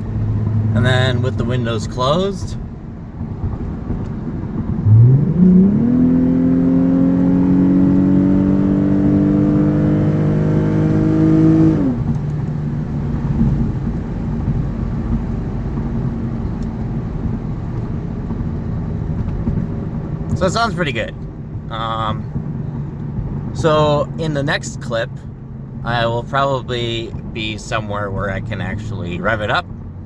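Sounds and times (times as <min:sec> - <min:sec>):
low exhaust rumble: 0:00.0 - 0:07.7, 0:11.8 - 0:30.0
car engine accelerating: 0:00.0 - 0:30.0.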